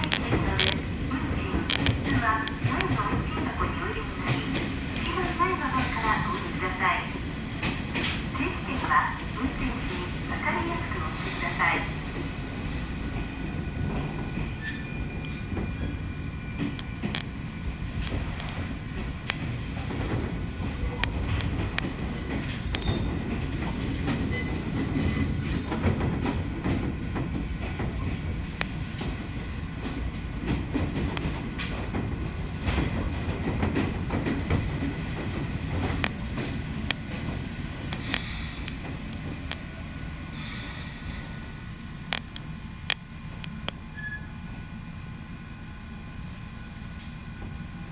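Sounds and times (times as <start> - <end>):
train wheels rumbling on rail: 0.0 - 47.9
wheels clicking over rail joints: 13.1 - 39.8
faint wheel squeal: 43.9 - 44.6.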